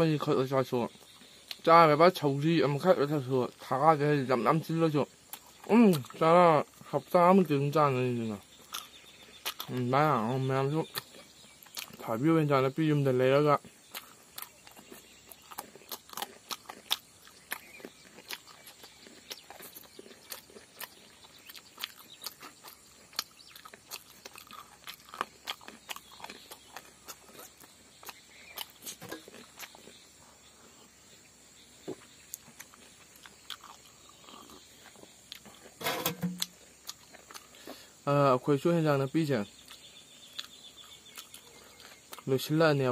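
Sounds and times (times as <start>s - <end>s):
person chewing crunchy food: 5.2s - 7.0s, 8.2s - 12.2s, 13.3s - 30.8s, 31.8s - 38.0s, 39.5s - 42.4s.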